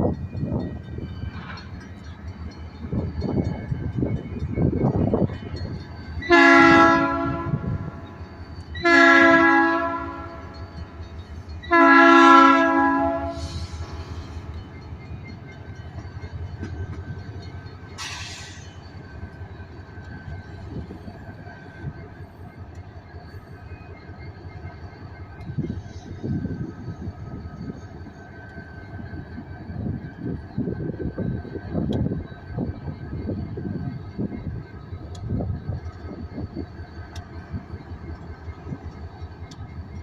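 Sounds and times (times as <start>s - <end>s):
locomotive engine running: 0.0s - 40.0s
locomotive air horn blasts: 6.2s - 8.0s, 8.8s - 10.6s, 11.6s - 14.0s
short air hiss: 18.0s - 18.8s.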